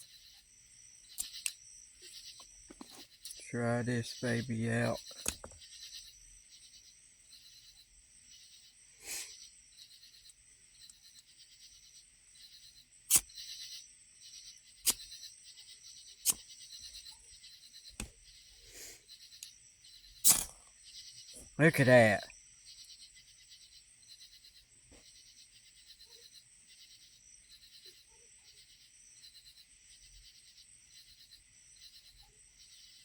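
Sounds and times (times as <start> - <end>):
insects chorus: 0.0 - 33.0
striker scraping fire-steel rod: 20.2 - 20.6.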